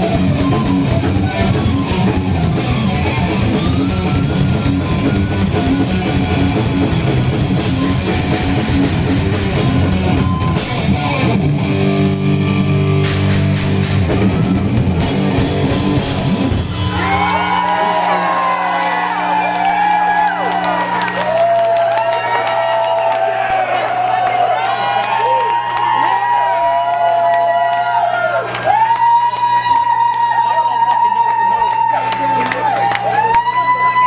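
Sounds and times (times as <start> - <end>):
drum kit: 0.0 - 21.8
distorted electric guitars: 0.0 - 22.8.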